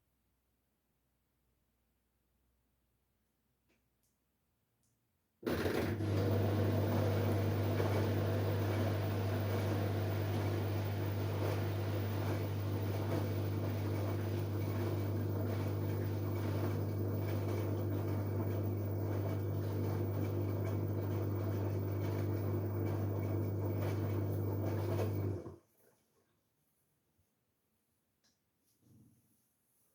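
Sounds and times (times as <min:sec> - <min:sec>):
washing machine humming: 0:05.4 - 0:25.6.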